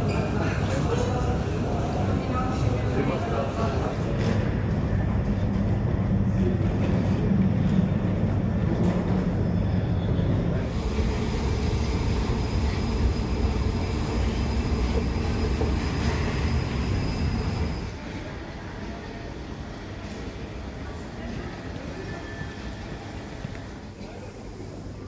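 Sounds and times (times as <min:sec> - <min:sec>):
aircraft cabin rumble: 0:10.6 - 0:17.8.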